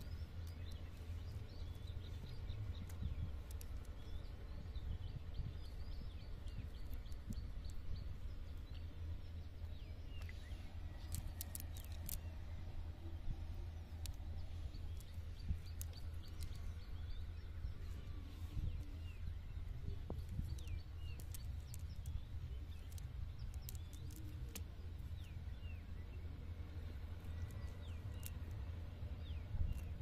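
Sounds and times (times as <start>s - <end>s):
faint clicks: 0.0s - 4.2s, 11.0s - 12.3s, 20.0s - 25.3s, 27.2s - 28.7s
bird chirps: 0.0s - 30.0s.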